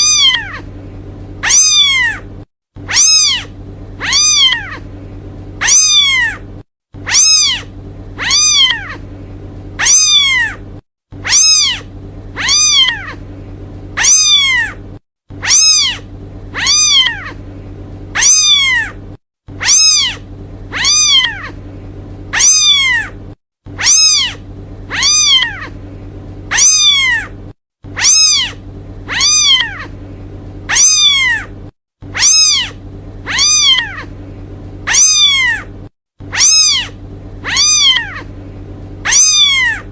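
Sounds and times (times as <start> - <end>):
kitten meowing: 0.0 - 0.7, 1.4 - 2.3, 2.9 - 4.9, 5.6 - 6.4, 7.0 - 9.0, 9.8 - 10.6, 11.2 - 13.2, 14.0 - 14.8, 15.4 - 17.4, 18.2 - 19.0, 19.6 - 21.6, 22.3 - 23.2, 23.8 - 25.8, 26.5 - 27.3, 28.0 - 30.0, 30.7 - 31.5, 32.1 - 34.1, 34.9 - 35.7, 36.3 - 38.3, 39.0 - 39.9
low hum: 0.0 - 39.9.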